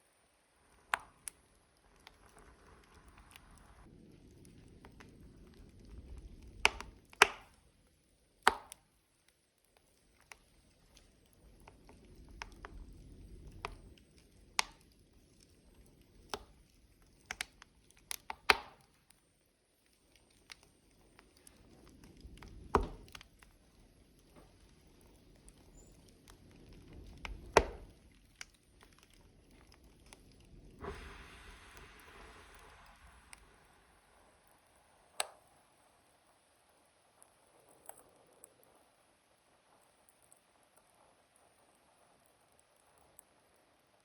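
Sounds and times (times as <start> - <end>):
low rumble of flame: 0.0 - 44.0
wood fire crackling and popping: 0.0 - 44.0
burst of hissing: 30.8 - 35.2.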